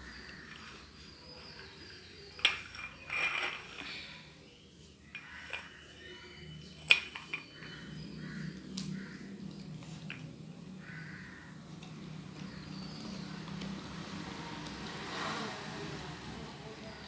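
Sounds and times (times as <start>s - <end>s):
scraping rustle: 0.3s - 4.3s.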